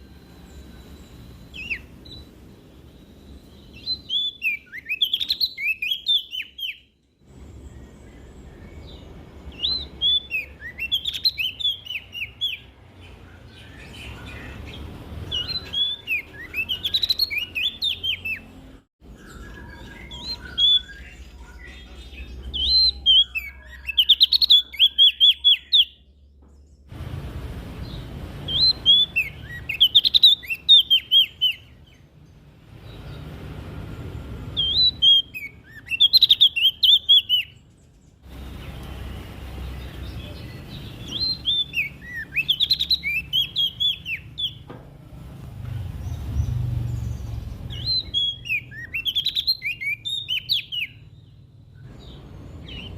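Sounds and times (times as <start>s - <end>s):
songbird chirping: 0.0s - 52.9s
low hum: 26.9s - 29.6s.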